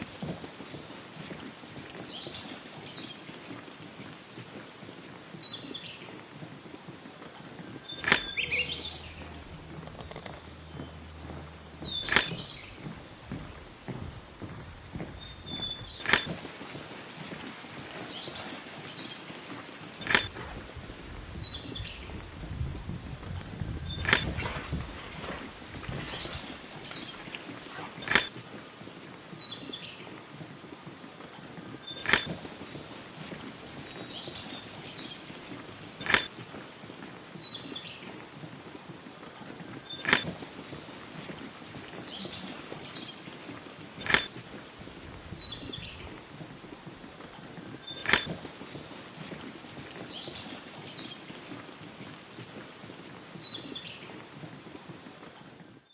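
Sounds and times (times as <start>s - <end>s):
birds chirping and whistling: 7.7s - 16.4s, 17.8s - 28.5s, 31.8s - 36.6s, 41.8s - 46.2s
sharp clicks: 7.9s - 16.5s, 20.0s - 27.3s, 28.0s - 28.6s, 31.9s - 32.6s, 35.5s - 36.6s, 39.9s - 41.4s, 44.0s - 46.2s, 47.9s - 48.6s
sharp click: 8.0s - 10.4s, 11.3s - 12.7s, 15.5s - 16.4s, 20.0s - 20.5s, 24.0s - 24.4s, 28.1s - 28.4s, 32.0s - 32.4s, 36.0s - 36.4s, 40.0s - 40.4s, 44.0s - 44.4s, 48.0s - 48.4s.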